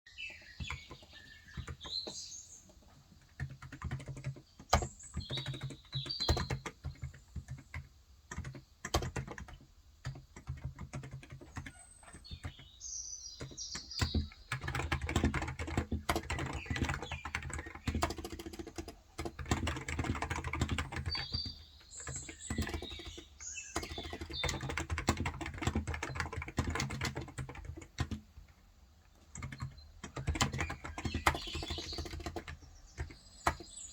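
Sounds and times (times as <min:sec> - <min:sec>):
bird chirps: 0:00.1 - 0:03.0, 0:03.8 - 0:07.3, 0:11.4 - 0:27.0, 0:29.3 - 0:33.9
keyboard typing: 0:00.3 - 0:12.7, 0:13.4 - 0:33.9.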